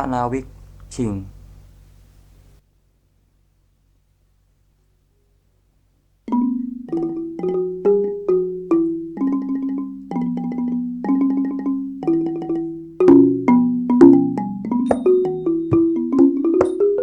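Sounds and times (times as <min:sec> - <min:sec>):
bass xylophone notes: 0:06.3 - 0:17.0.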